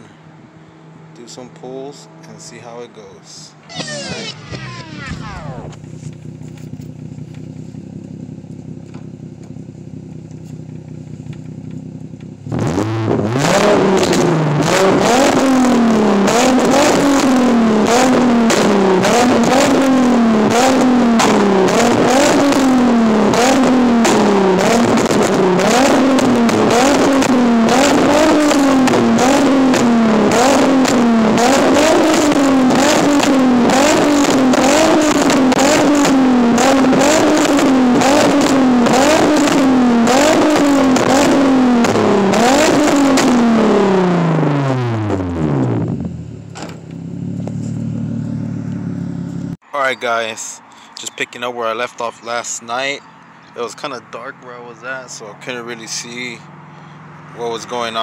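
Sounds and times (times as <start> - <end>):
car engine idling and revving: 0.0 - 58.0
exhaust popping and crackling: 3.6 - 49.6.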